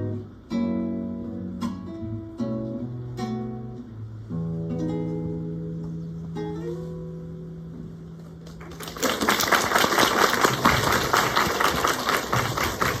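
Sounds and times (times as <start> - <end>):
audience applause: 8.5 - 13.0.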